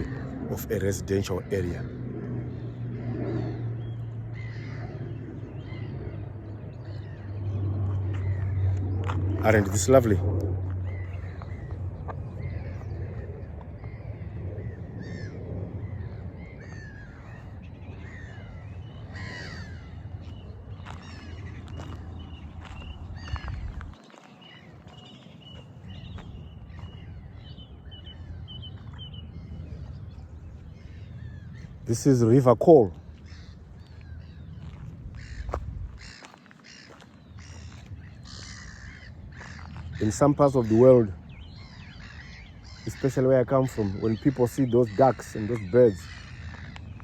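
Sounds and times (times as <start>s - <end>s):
flock of birds calling: 0.0s - 1.9s, 2.5s - 47.0s
low rumble: 0.0s - 24.0s.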